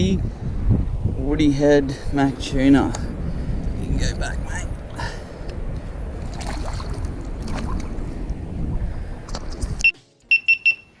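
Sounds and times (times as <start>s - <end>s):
wind buffeting microphone: 0.0s - 9.9s
water splashing: 6.1s - 9.6s
high electronic beep: 9.8s - 11.0s.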